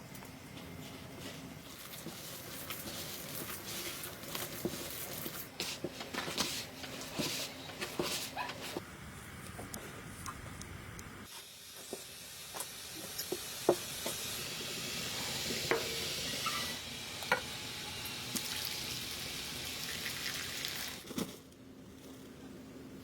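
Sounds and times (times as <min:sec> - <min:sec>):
food sizzling in a pan: 0:11.3 - 0:21.0.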